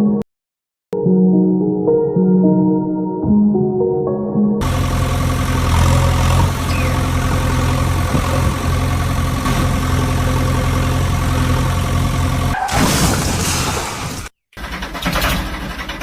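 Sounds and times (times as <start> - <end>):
engine idling: 4.6 - 12.6.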